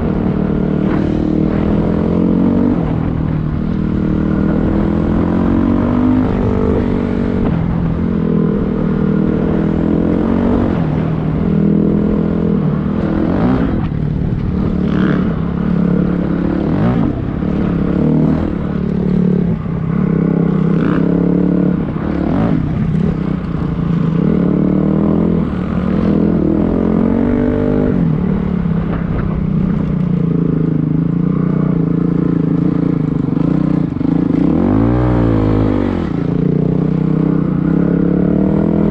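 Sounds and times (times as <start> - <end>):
dirt bike engine revving: 8.7 - 28.4.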